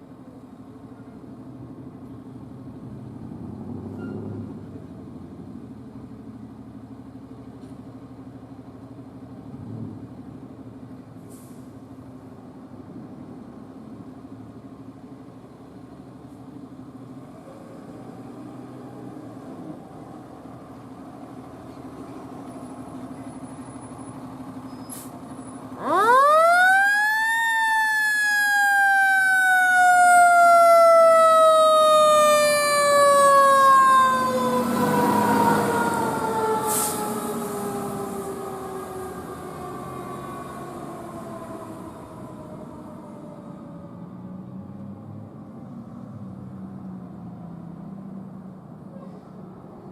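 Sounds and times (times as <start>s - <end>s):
vehicle engine rumble: 0.0s - 49.9s
fire truck siren: 25.6s - 45.7s.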